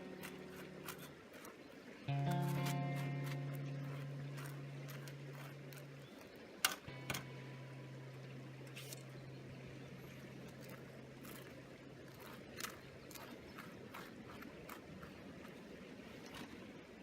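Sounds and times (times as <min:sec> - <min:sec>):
faint low hum: 0:00.0 - 0:17.0
sharp clicks and knocks: 0:06.6 - 0:07.3.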